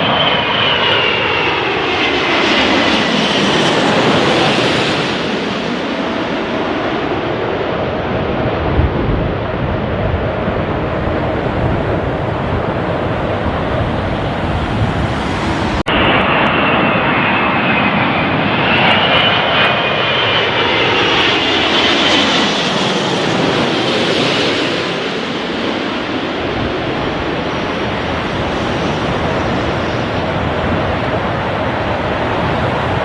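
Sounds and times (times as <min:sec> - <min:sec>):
jet airliner passing overhead: 0:00.0 - 0:33.0.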